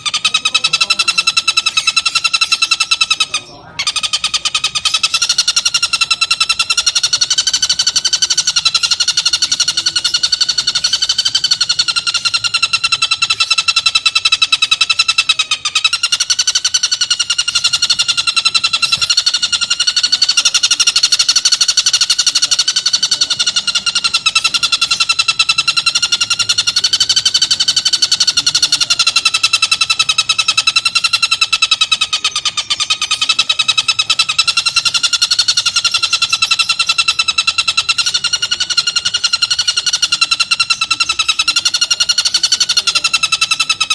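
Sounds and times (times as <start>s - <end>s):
kingfisher rattling call: 0.0s - 43.9s.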